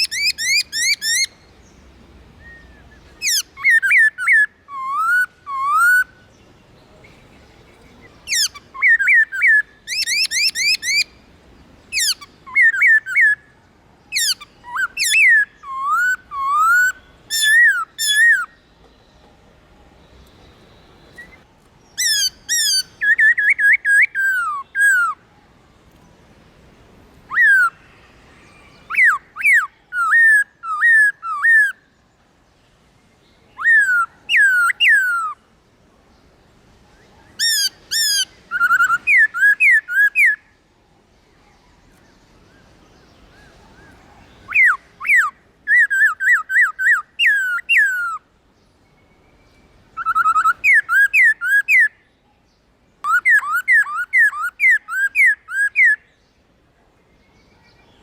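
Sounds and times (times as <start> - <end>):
bird singing whistled phrases: 2.4 - 6.3, 8.3 - 11.1, 14.1 - 18.6, 22.0 - 25.2, 27.3 - 31.8, 33.5 - 35.4, 37.2 - 40.5, 43.4 - 48.2, 48.9 - 52.1, 53.0 - 56.1.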